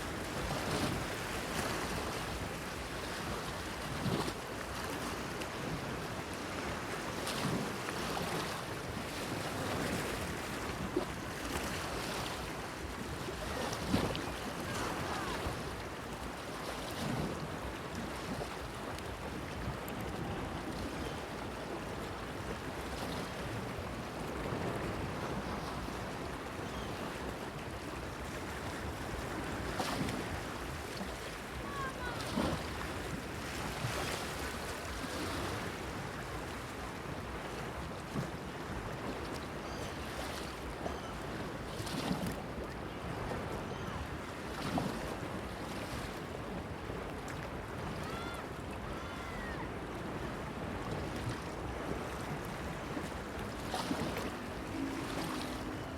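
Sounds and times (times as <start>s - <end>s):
surf washing: 0.0s - 55.9s
water splashes: 28.6s - 36.7s, 50.8s - 55.9s.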